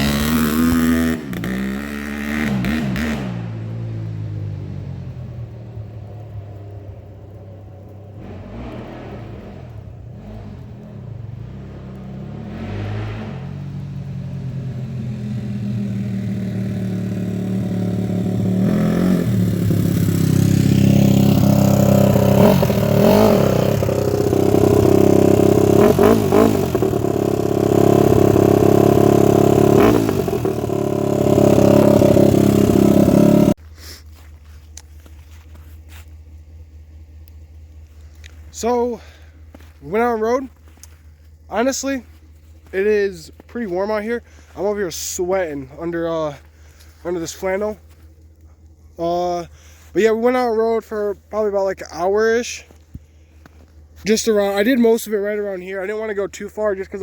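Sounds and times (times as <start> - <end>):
dirt bike engine revving: 0.0 - 6.3, 8.1 - 33.6, 54.0 - 57.0.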